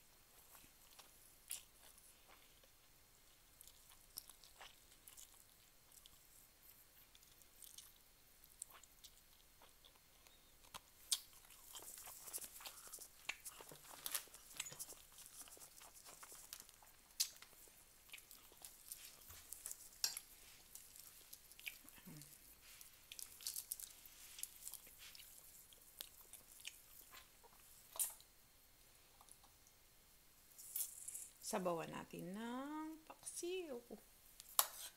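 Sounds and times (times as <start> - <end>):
wet chewing and lip smacks: 3.6 - 28.3.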